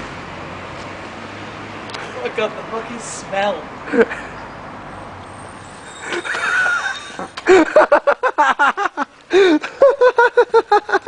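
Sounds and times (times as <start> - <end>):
person laughing hard: 6.1 - 11.0.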